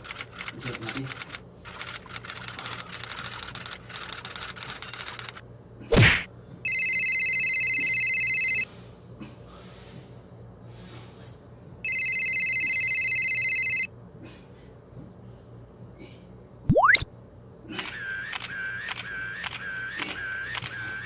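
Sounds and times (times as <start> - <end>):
high-pitched electronic ringing tone: 6.7 - 8.7, 11.9 - 13.9, 16.7 - 17.0.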